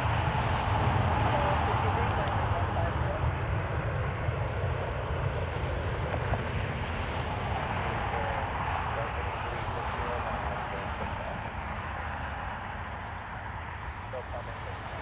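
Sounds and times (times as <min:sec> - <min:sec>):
wind buffeting microphone: 0:00.0 - 0:09.1
jet engines rushing: 0:00.0 - 0:15.0.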